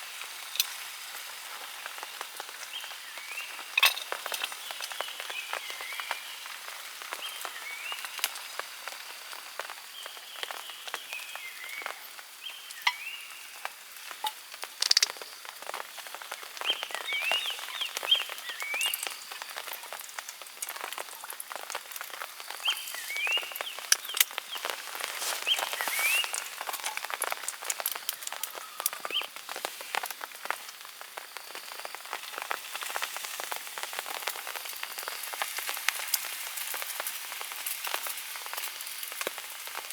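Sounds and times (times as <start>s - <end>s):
rain drops ticking and tapping: 0.0s - 39.9s.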